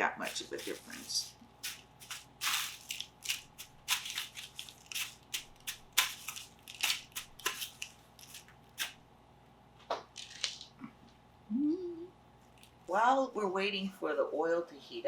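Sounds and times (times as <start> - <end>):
crunching scrapes in breadcrumbs: 0.0 - 9.0.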